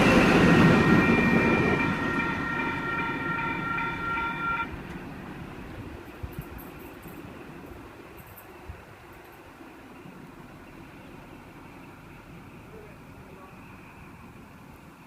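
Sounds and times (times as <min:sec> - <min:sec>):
high steady ringing tone: 0:00.0 - 0:04.8
train passing: 0:00.0 - 0:15.0.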